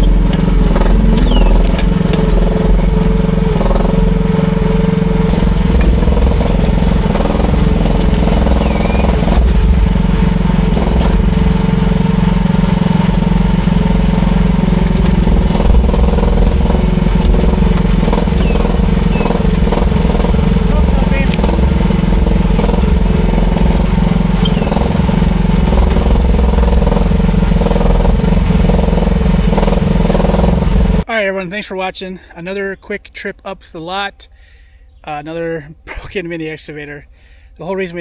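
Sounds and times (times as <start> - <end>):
mini excavator engine running: 0.0 - 31.1.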